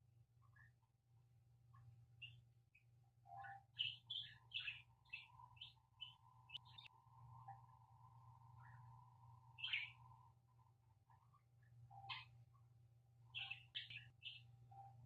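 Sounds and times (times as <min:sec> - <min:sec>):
budgerigars chirping: 0:03.8 - 0:06.9, 0:09.6 - 0:10.1, 0:13.4 - 0:14.4.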